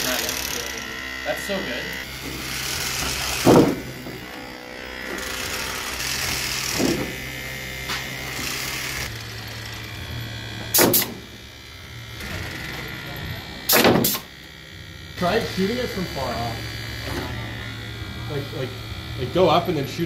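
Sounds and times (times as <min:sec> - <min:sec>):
electric motors whirring: 0:00.0 - 0:20.0
sharp loud thumps: 0:03.3 - 0:04.3, 0:10.7 - 0:11.2, 0:13.7 - 0:14.2.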